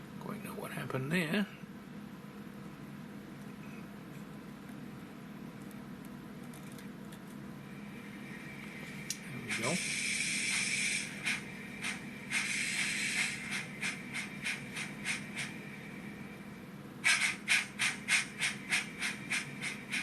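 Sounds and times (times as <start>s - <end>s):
model steam locomotive chuffs: 7.9s - 20.0s
steam hiss: 8.1s - 16.3s, 17.0s - 20.0s.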